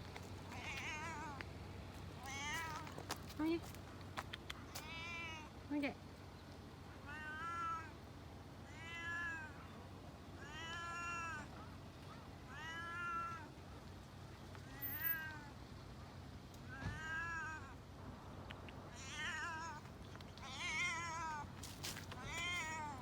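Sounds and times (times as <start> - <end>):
cat meowing: 0.6 - 1.4, 2.2 - 3.0, 4.8 - 5.5, 7.0 - 7.9, 8.7 - 9.6, 10.4 - 11.6, 12.5 - 13.5, 14.6 - 15.5, 16.7 - 17.8, 18.9 - 19.8, 20.4 - 21.5, 22.1 - 23.0.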